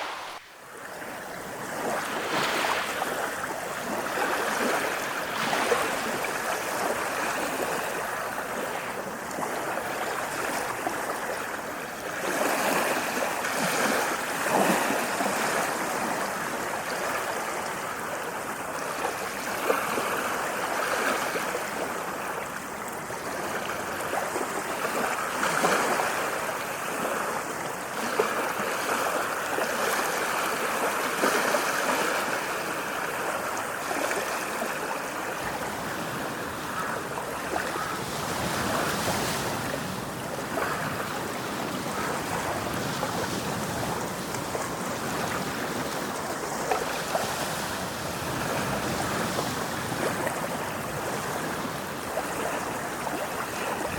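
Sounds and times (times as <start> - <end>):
ocean waves washing on shore: 0.0 - 53.9.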